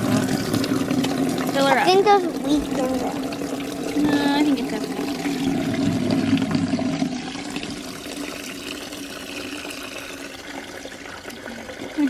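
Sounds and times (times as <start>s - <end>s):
water pouring into bucket: 0.0s - 12.0s.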